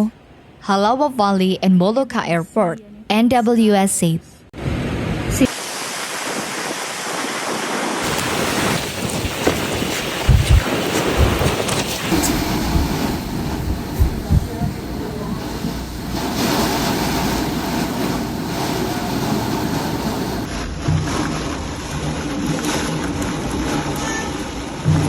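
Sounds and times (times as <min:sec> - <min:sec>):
heavy rain: 0:04.6 - 0:20.6
wind: 0:04.6 - 0:25.0
wind gusts buffeting microphone: 0:06.0 - 0:20.5.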